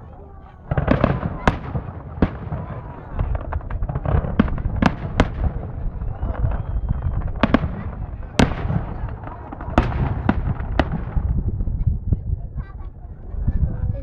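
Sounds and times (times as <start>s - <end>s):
firework shells bursting: 0.6s - 11.5s.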